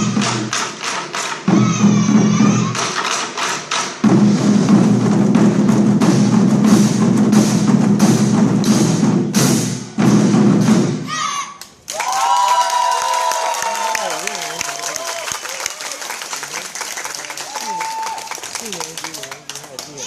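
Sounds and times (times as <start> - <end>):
war drums rolling: 0.0 - 11.2.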